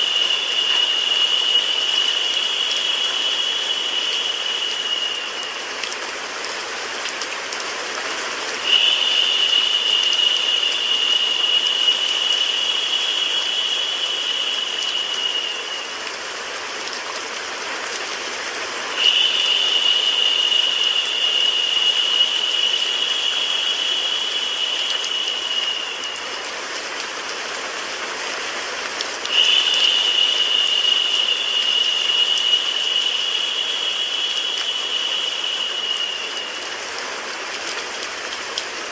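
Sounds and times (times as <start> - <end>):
rain and white noise hiss: 0.0 - 38.9.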